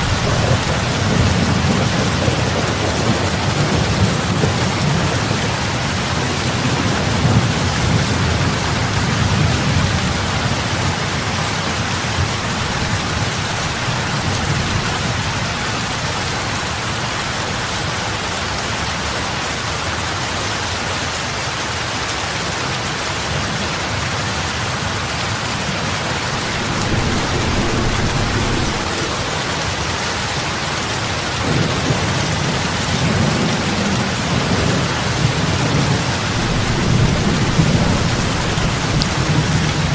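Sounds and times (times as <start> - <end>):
heavy rain on water: 0.0 - 39.9
low rumble: 26.0 - 30.6.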